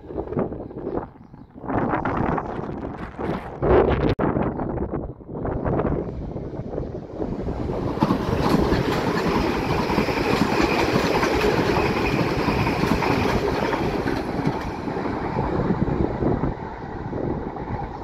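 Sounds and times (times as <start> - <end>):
train wheels rumbling and clattering: 6.2 - 18.0.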